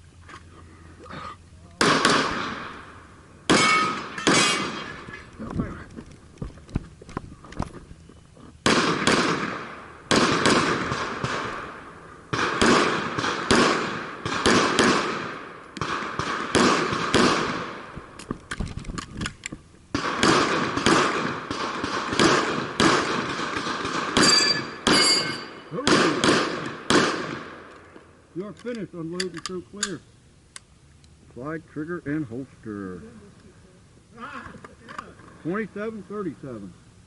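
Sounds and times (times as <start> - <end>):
echoing pistol shots: 1.8 - 2.9, 3.5 - 5.0, 8.6 - 18.0, 19.9 - 27.7
high ringing: 24.2 - 25.8.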